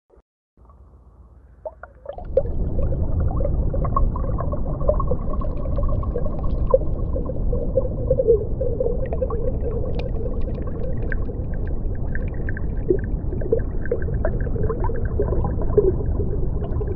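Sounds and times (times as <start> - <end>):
underwater low rumble: 0.6 - 16.9
underwater clicks: 9.9 - 11.8.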